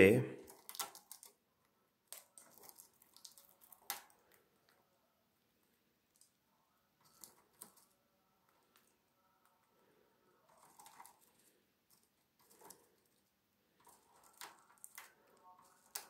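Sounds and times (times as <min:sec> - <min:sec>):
bird beak nibbling a peanut: 0:00.4 - 0:01.4, 0:02.0 - 0:04.8, 0:10.5 - 0:16.0.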